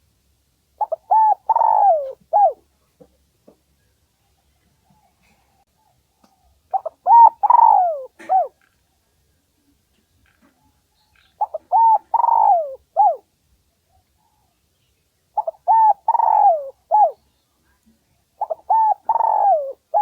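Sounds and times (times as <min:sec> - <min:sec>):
dove cooing: 0:00.8 - 0:02.6, 0:06.7 - 0:08.7, 0:11.4 - 0:13.3, 0:15.4 - 0:17.2, 0:18.4 - 0:20.0.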